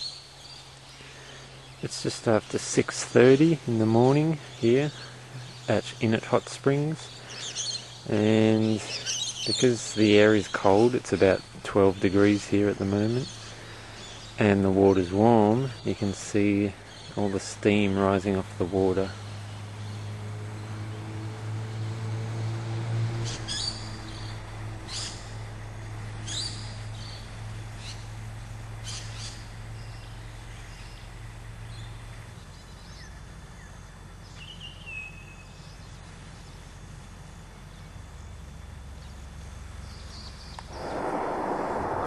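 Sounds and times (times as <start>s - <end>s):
birds calling: 0.0s - 20.2s, 23.2s - 25.4s, 26.2s - 38.0s
steady low hum: 0.0s - 21.8s, 35.6s - 42.0s
bird whistle falling: 40.7s - 42.0s.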